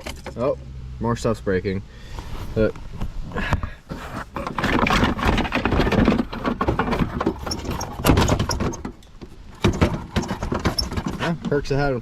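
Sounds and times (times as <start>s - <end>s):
plastic trim cracking and creaking: 4.0s - 11.7s.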